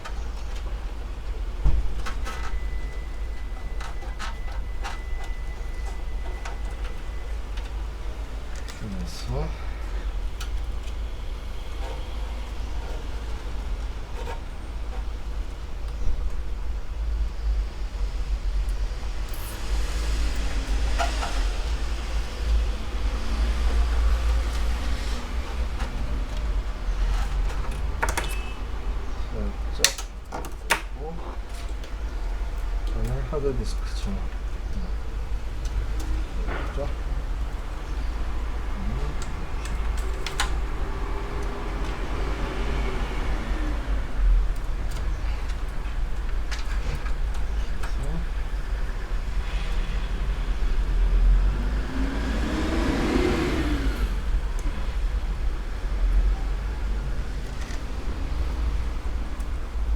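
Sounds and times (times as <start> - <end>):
cables rustling: 0.0 - 59.9
clicks and taps of plastic parts: 29.8 - 32.0.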